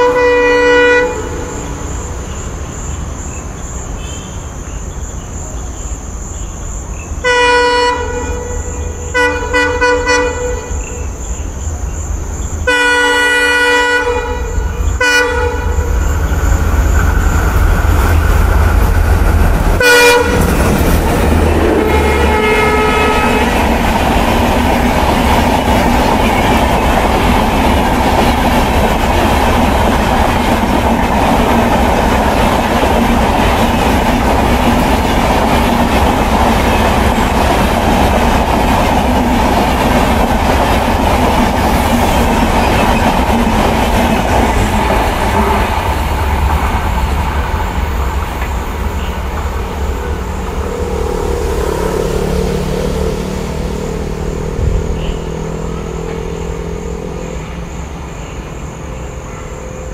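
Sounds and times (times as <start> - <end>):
locomotive horn blasts: 0.0 - 1.6, 7.2 - 11.0, 12.7 - 15.9, 19.8 - 20.6, 21.5 - 23.8
train rumble and wheel clatter: 0.0 - 59.9.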